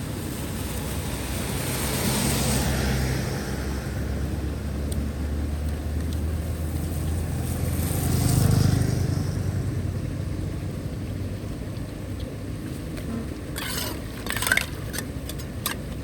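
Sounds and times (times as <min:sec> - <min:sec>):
vehicle driving past: 0:00.8 - 0:11.3.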